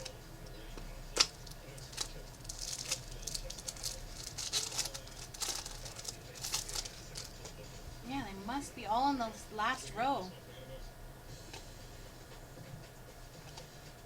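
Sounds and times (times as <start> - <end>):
wrappers crinkling and rustling: 1.1 - 7.7.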